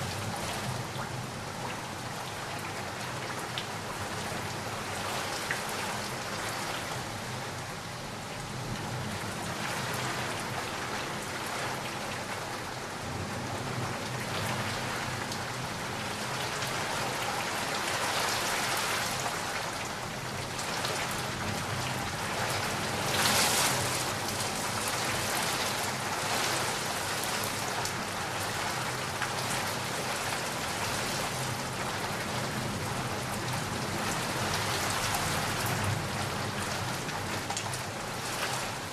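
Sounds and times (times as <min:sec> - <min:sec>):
rain pattering: 0:00.0 - 0:38.9.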